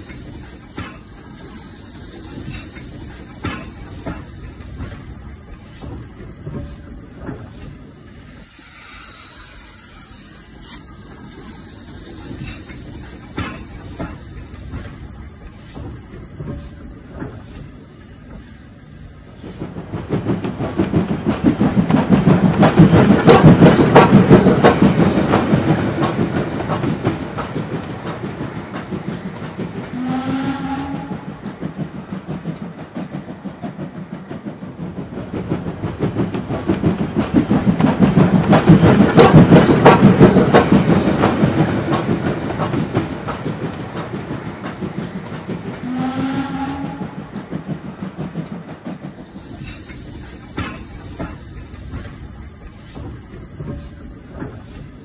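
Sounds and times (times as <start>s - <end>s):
train clattering: 0.0s - 55.0s
train whistle: 30.0s - 31.3s, 45.8s - 47.2s.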